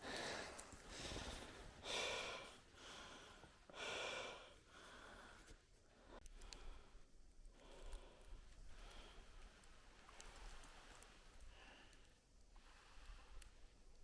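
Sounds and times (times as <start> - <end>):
person breathing hard: 0.0 - 7.0.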